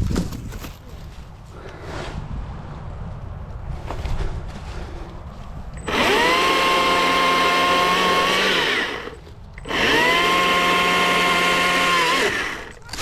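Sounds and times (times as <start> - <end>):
chainsaw revving: 5.8 - 13.0.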